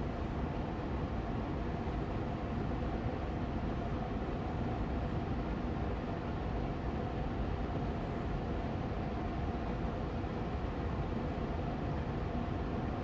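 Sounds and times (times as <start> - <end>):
air purifier fan running: 0.0 - 13.0.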